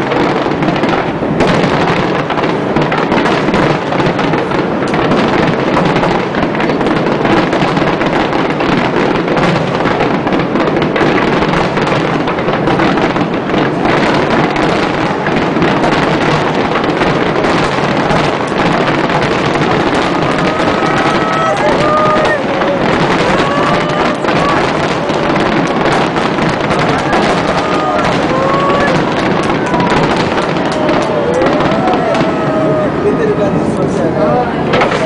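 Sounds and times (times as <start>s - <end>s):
fireworks bursts and crackles: 0.0s - 35.0s.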